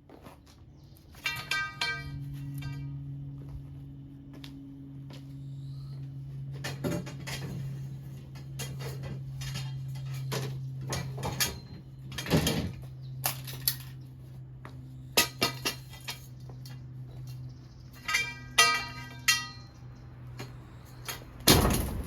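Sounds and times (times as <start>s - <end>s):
steady low hum: 0.0s - 22.0s
metal pieces clanking: 1.2s - 2.9s, 18.0s - 19.9s.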